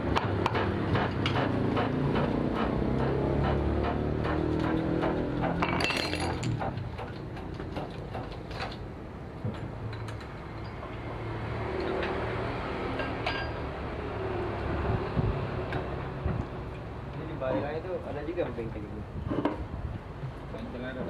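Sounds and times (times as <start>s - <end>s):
light metallic clinks and knocks: 5.6s - 6.8s, 9.9s - 11.1s.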